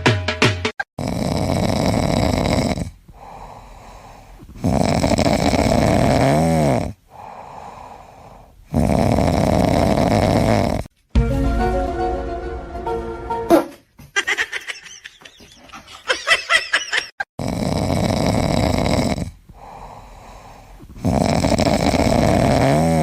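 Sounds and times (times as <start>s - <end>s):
pet snoring: 0.9s - 10.9s, 17.3s - 23.0s
quiet breaths: 1.4s - 10.9s, 17.8s - 22.4s.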